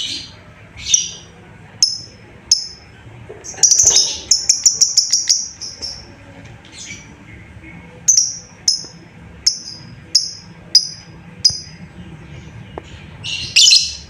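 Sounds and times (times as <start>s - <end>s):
lovebird chirping: 0.0s - 2.8s, 3.5s - 6.1s, 8.0s - 11.8s, 13.2s - 14.0s.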